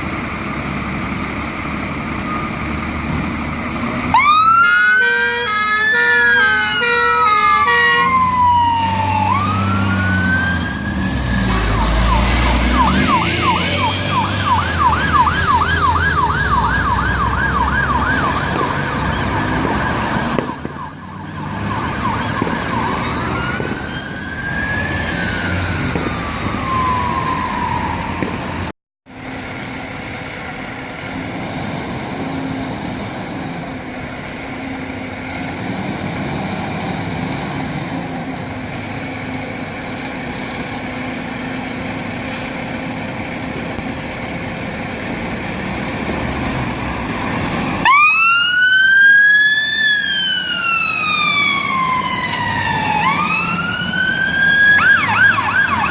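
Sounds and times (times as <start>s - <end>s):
engine rumble: 0.0s - 55.9s
fire engine sirens wailing and yelping: 0.0s - 55.9s.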